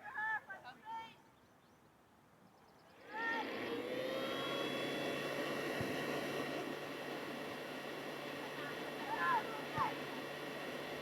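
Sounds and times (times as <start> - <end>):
aircraft engine with faint whine: 2.7 - 11.0.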